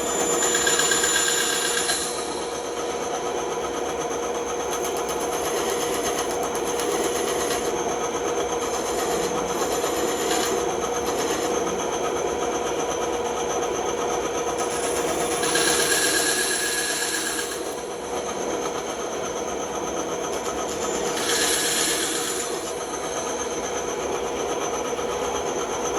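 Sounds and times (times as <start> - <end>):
bandsaw running: 0.0 - 2.6, 4.9 - 11.8, 14.6 - 18.0, 20.3 - 23.1.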